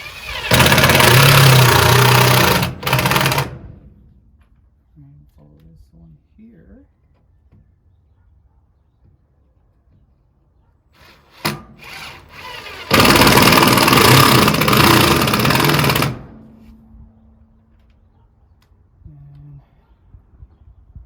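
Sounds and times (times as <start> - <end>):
power drill running: 0.0 - 3.6, 11.0 - 16.5.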